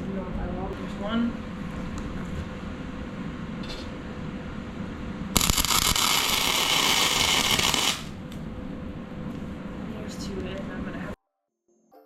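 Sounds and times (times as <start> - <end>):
welding arc crackling and hissing: 5.4 - 8.2.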